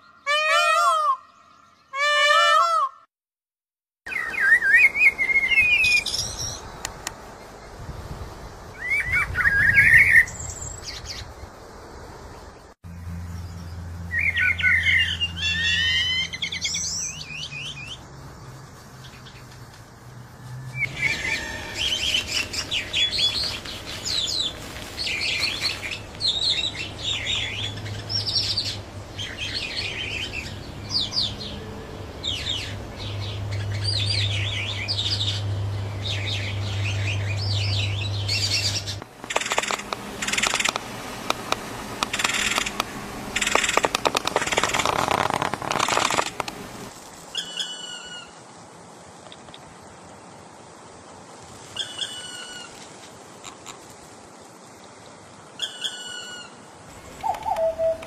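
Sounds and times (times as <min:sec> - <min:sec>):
birds chirping: 0:08.7 - 0:48.4, 0:54.9 - 0:58.0.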